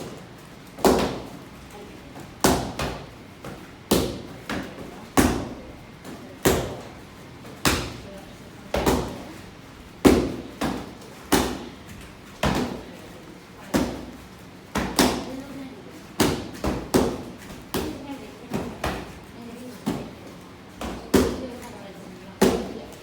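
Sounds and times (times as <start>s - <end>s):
kicks smacking kick mitts: 0.8s - 1.4s.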